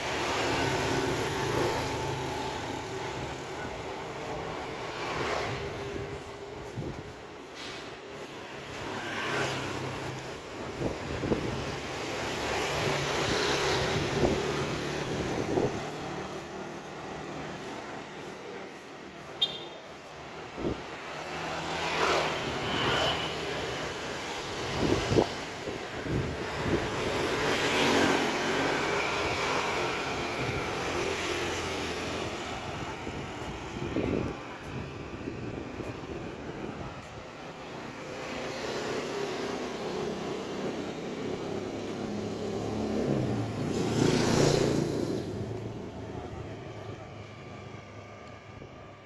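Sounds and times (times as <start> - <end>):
road noise: 0.0 - 49.0
engine passing by: 8.6 - 18.9, 20.6 - 49.0.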